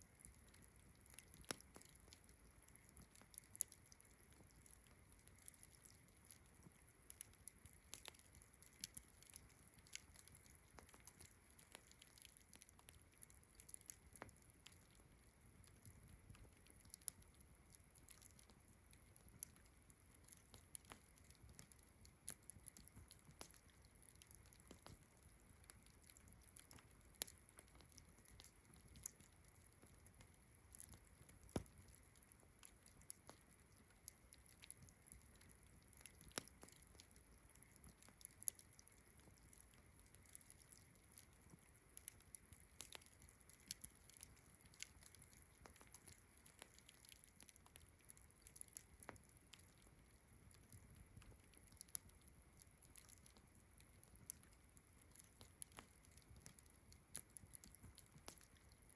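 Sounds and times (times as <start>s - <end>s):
campfire crackling and popping: 0.0s - 58.9s.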